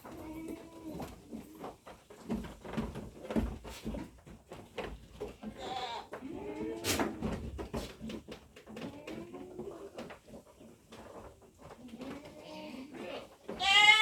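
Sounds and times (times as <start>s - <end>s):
knocks and shuffling in pen: 0.0s - 14.0s
goats bleating: 5.5s - 6.9s, 12.2s - 14.0s.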